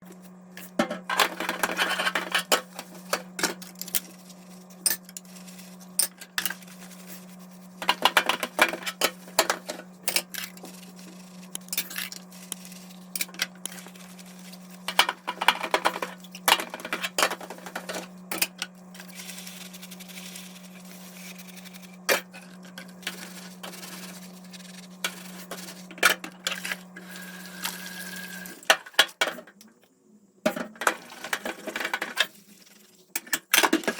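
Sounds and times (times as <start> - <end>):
steady low hum: 0.0 - 28.7
sponge scrubbing: 4.2 - 9.4, 10.4 - 11.5, 19.0 - 22.0, 23.0 - 25.9.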